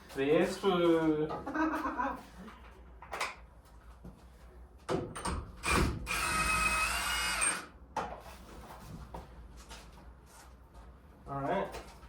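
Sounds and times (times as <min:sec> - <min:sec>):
power tool running: 0:05.6 - 0:07.7.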